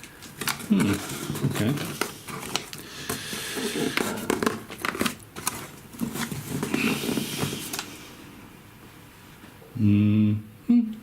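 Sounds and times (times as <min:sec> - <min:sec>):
cardboard box rustling: 0:00.4 - 0:07.8.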